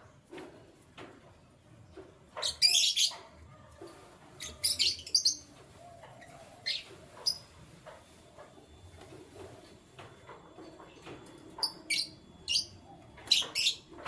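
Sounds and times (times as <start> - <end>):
canaries chirping: 2.4 - 3.3, 4.3 - 8.0, 10.9 - 14.0.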